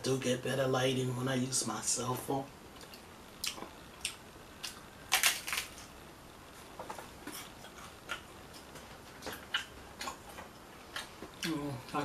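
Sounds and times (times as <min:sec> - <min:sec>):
person crunching taco shell: 0:02.8 - 0:05.9.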